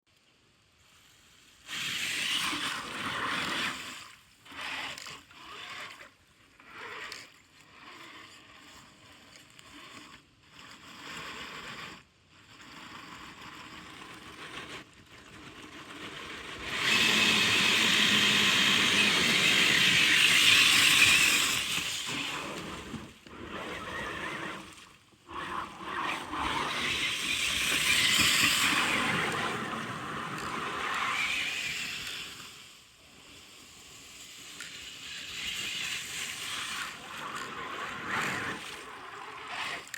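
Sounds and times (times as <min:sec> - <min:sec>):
radio-controlled truck motor: 0:01.6 - 0:39.9
tyres over rough ground: 0:04.5 - 0:32.5, 0:34.3 - 0:39.9.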